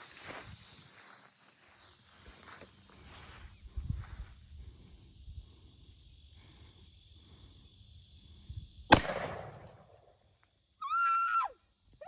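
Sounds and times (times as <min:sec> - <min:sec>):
revolver gunshot with echo: 0:08.9 - 0:09.8.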